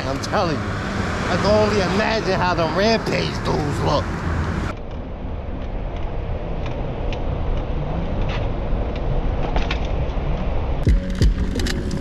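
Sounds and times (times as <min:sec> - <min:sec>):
tyres rumbling on dirt: 0:00.0 - 0:04.8
wind on camera: 0:04.0 - 0:12.0
bike clicks and rattles: 0:05.6 - 0:12.0.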